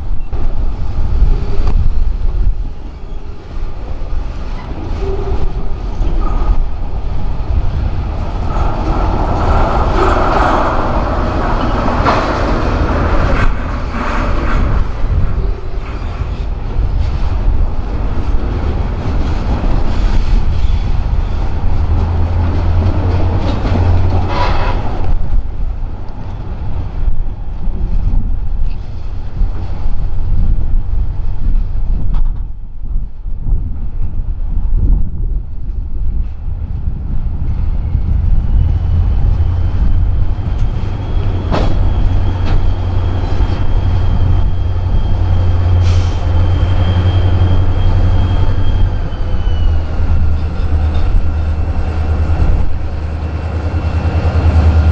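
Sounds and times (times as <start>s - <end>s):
freight train rumbling: 0.0s - 54.9s
high wheel squeal: 37.8s - 54.9s.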